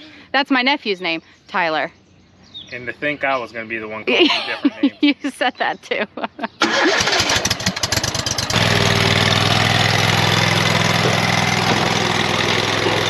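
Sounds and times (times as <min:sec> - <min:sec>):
lawn mower engine starting: 0:06.6 - 0:13.0.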